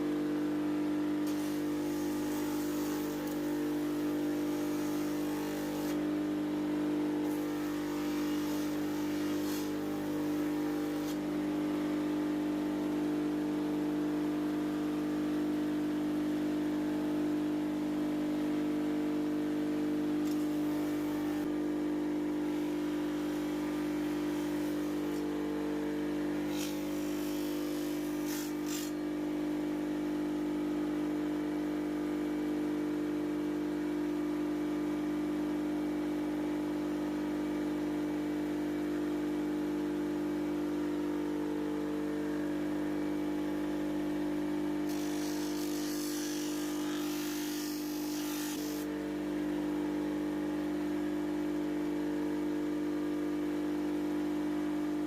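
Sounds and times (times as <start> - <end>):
grinding hiss on steel: 1.2 - 6.0, 7.2 - 11.2, 26.4 - 28.9, 44.9 - 48.9
electric grinder motor running: 1.2 - 12.0, 20.2 - 21.5, 22.4 - 29.0, 44.8 - 49.0.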